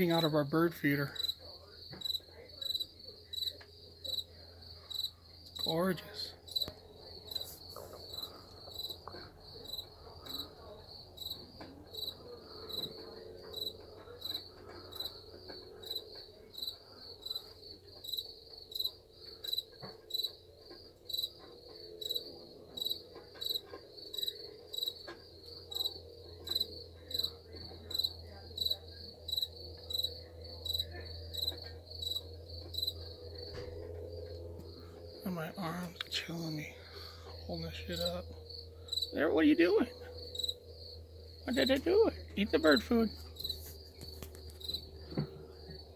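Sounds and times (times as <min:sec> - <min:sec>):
cricket chirping: 0:00.0 - 0:45.9.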